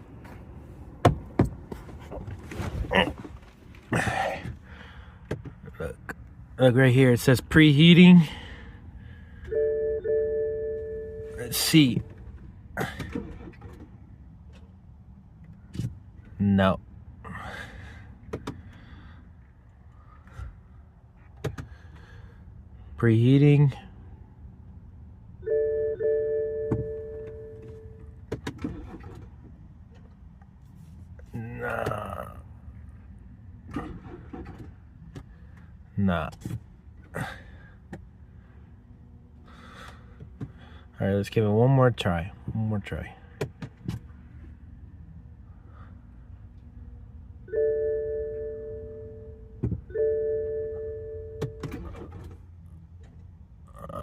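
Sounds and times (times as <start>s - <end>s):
dashboard warning chime: 9.4s - 11.6s, 25.4s - 28.2s, 47.4s - 52.0s.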